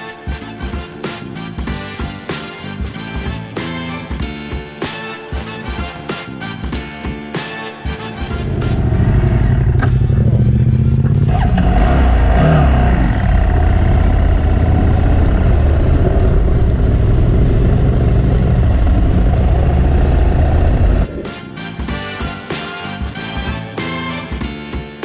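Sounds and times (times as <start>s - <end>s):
motorcycle engine running: 8.3s - 21.2s
wind rush on microphone: 8.6s - 21.2s.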